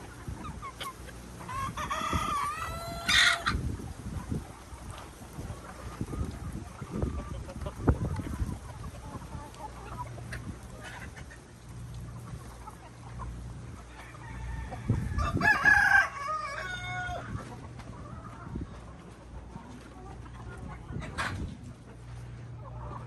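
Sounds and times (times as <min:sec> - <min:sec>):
hens clucking: 0:00.0 - 0:23.0
rooster crowing: 0:01.5 - 0:03.4, 0:14.0 - 0:17.3.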